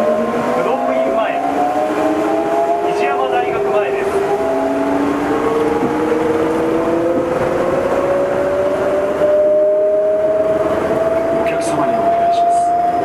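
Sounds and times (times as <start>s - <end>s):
train rolling noise: 0.0s - 13.0s
motor whine rising in pitch: 4.0s - 13.0s.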